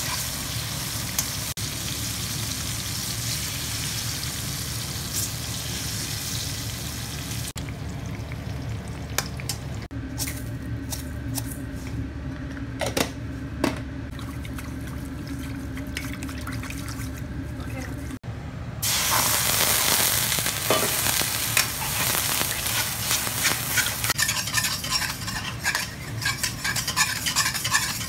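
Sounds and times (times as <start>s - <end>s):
food frying in hot oil: 0.0s - 9.9s, 18.8s - 28.0s.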